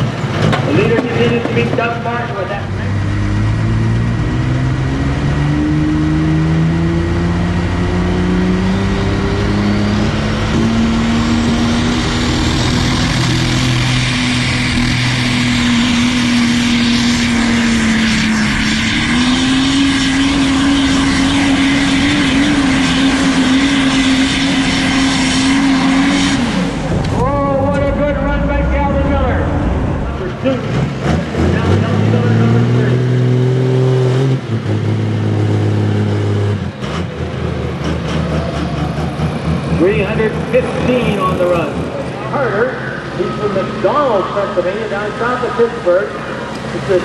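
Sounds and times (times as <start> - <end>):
truck engine at full throttle: 0.0 - 47.0.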